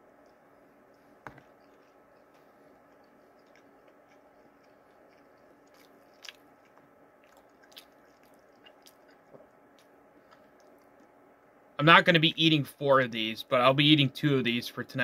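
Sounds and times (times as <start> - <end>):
faint chewing: 0.0 - 11.2
low room hum: 0.0 - 15.0.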